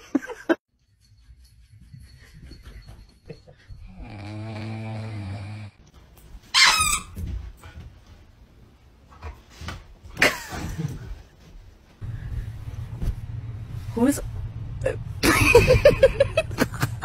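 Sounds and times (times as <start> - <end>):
dog snoring: 3.9 - 5.8
high squeak: 6.5 - 7.2.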